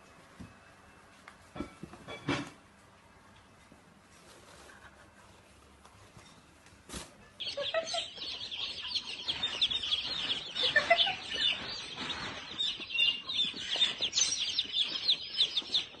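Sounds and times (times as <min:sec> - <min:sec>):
many birds chirping: 0:07.4 - 0:16.0.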